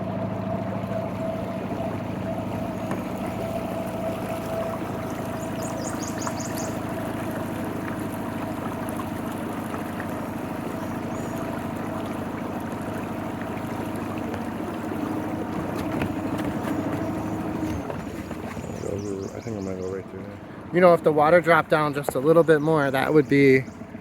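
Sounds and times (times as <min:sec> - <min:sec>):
outboard motor running: 0:00.0 - 0:24.0
water washing past hull: 0:00.0 - 0:24.0.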